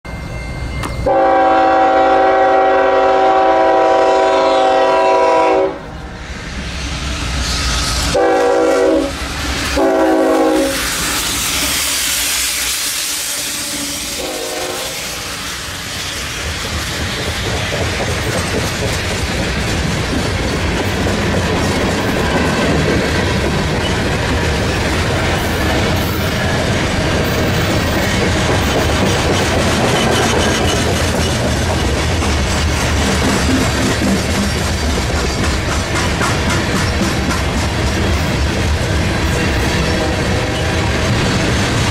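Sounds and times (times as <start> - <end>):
train wheels rumbling and clacking: 0.2 - 41.9
locomotive air horn blasts: 1.0 - 5.9, 8.1 - 9.2, 9.8 - 10.9, 12.5 - 15.2.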